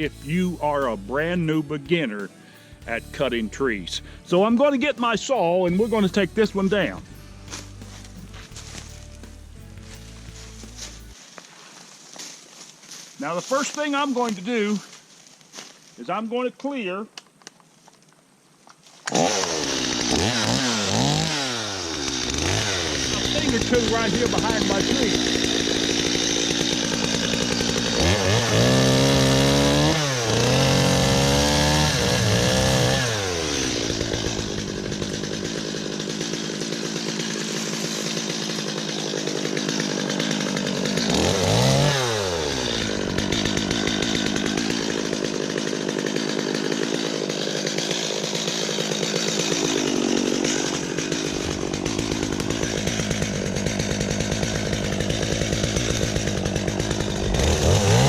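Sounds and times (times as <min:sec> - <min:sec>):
chainsaw revving: 0:00.0 - 0:01.6, 0:05.7 - 0:11.2, 0:19.1 - 0:58.0.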